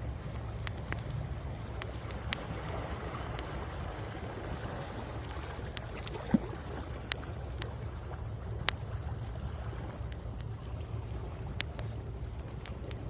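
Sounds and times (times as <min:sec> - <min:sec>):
waves on the shore: 0:00.0 - 0:13.0
wood fire crackling: 0:00.0 - 0:13.0.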